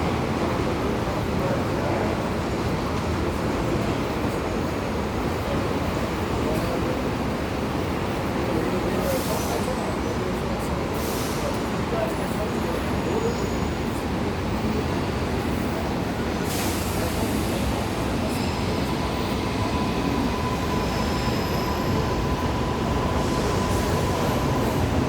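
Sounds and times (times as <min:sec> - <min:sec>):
subway train rumbling on track: 0:00.0 - 0:25.0.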